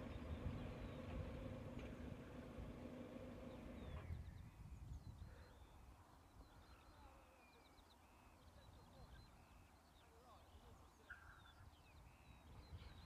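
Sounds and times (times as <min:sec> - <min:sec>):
birds chirping and whistling: 0:00.0 - 0:01.7, 0:02.3 - 0:10.1, 0:11.1 - 0:13.0
low steady hum: 0:00.0 - 0:04.9.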